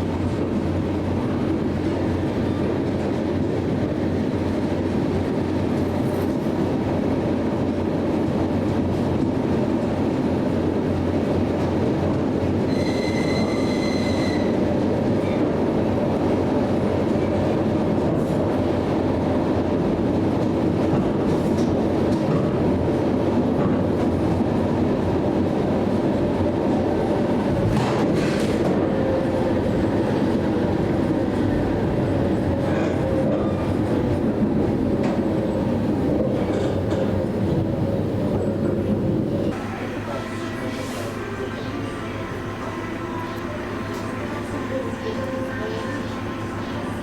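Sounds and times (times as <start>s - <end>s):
train rumbling on rails: 0.0s - 47.0s
high wheel squeal: 12.7s - 14.6s.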